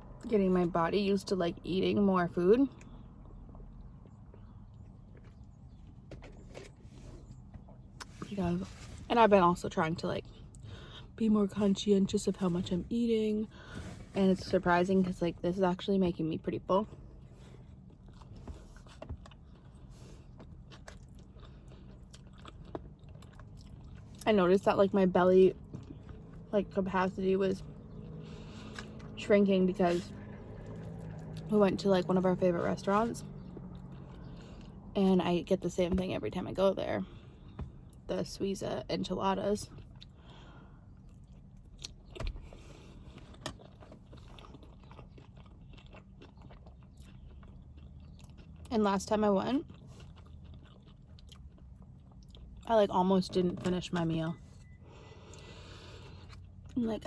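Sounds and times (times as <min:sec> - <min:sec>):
person chewing food: 0:17.1 - 0:24.2, 0:39.7 - 0:48.7, 0:49.5 - 0:52.6, 0:54.6 - 0:56.8.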